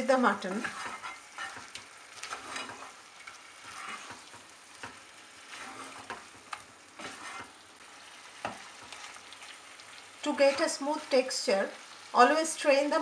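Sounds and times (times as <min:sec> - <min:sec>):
meat sizzling in a pan: 0:00.0 - 0:13.0
spatula scraping a pan: 0:00.1 - 0:09.6, 0:10.2 - 0:11.1.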